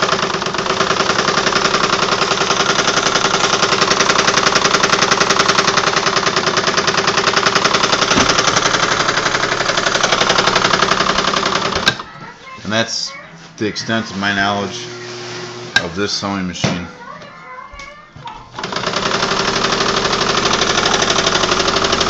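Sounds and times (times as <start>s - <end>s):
sewing machine running: 0.0s - 12.2s, 18.5s - 22.0s.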